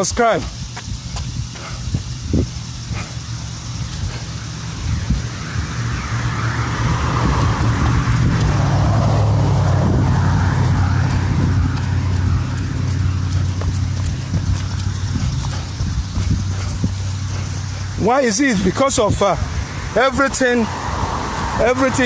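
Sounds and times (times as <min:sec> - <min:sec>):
tyre noise: 0:00.0 - 0:22.0
vehicle engine hum: 0:00.0 - 0:22.0.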